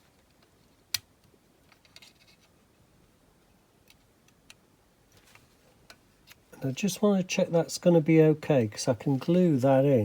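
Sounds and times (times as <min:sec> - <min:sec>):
plastic parts clicking and rattling: 0:00.0 - 0:02.6.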